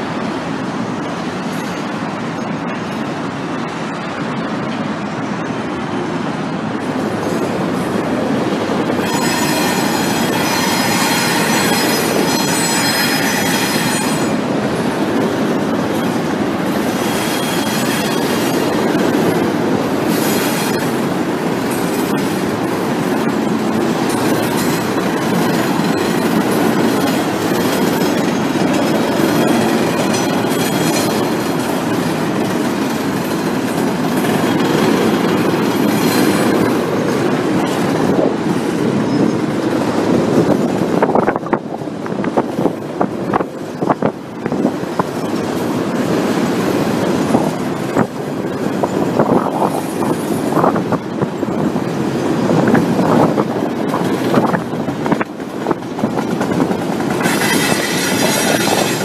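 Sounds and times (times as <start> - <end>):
train wheels rumbling on rail: 0.0 - 59.0
wheel squeal: 9.0 - 14.4, 16.9 - 18.6, 57.2 - 59.0.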